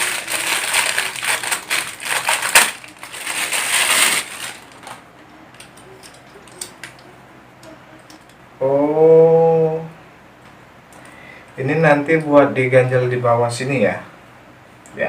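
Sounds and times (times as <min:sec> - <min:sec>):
packaging crinkling and rustling: 0:00.0 - 0:05.0.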